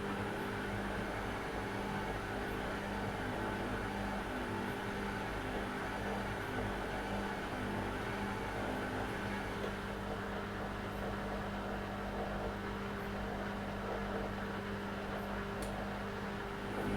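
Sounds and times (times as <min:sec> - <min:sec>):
washing machine humming: 0:15.4 - 0:16.9.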